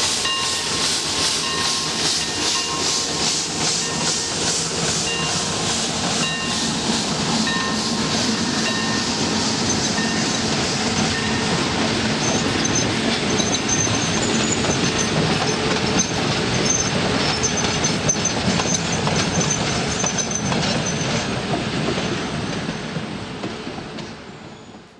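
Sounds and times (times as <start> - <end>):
train wheels clicking over rail joints: 0.0 - 24.9
high wheel squeal: 12.2 - 21.2.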